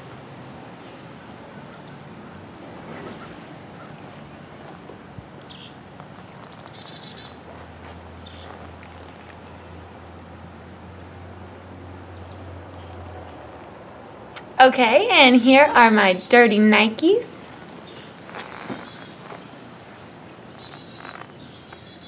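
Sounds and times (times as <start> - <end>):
birds chirping: 0.0 - 10.7, 11.9 - 22.0
bird trill: 5.4 - 7.5, 17.7 - 19.2, 20.3 - 22.0.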